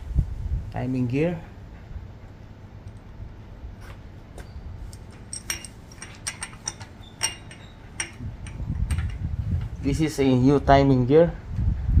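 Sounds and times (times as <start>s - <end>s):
low background hum: 0.0s - 12.0s
metal parts clinking: 4.9s - 9.8s.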